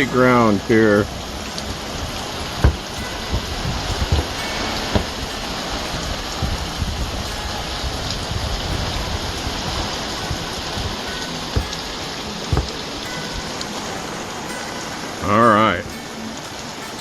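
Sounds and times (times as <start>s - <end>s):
steady rain falling: 0.0s - 17.0s
water drips: 0.0s - 17.0s.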